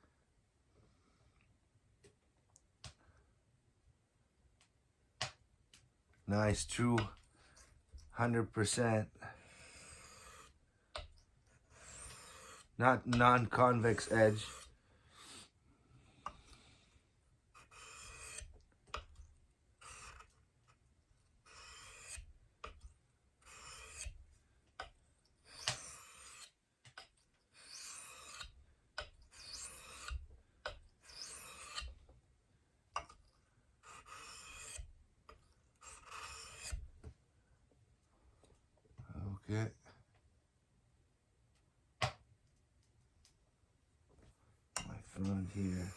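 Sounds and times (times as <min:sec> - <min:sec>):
knife scraping on whetstone: 0:09.5 - 0:10.6, 0:11.5 - 0:15.4, 0:17.5 - 0:19.2, 0:19.8 - 0:20.8, 0:21.4 - 0:22.8, 0:23.4 - 0:24.2, 0:24.8 - 0:32.0, 0:33.8 - 0:34.9, 0:35.8 - 0:36.9.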